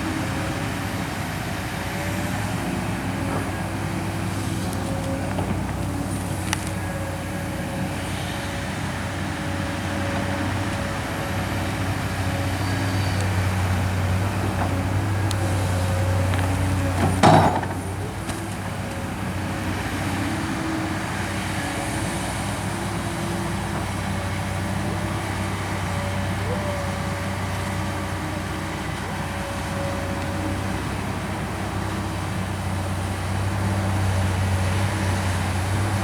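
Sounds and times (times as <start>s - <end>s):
excavator diesel engine running: 0.0s - 36.0s
loud metal clank: 17.0s - 17.9s.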